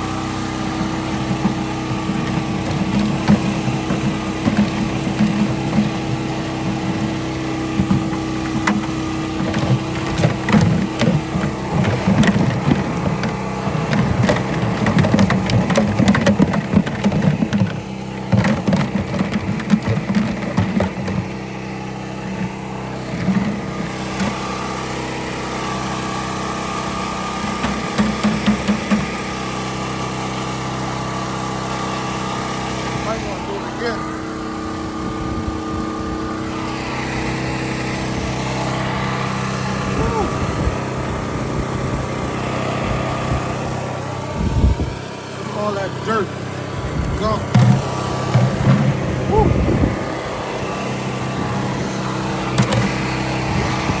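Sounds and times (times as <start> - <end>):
engine running steadily: 0.0 - 54.0
low rumbles: 46.6 - 54.0.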